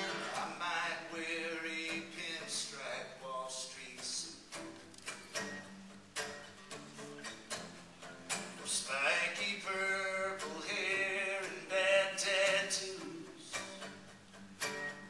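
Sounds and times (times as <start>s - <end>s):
person singing: 8.7s - 13.9s.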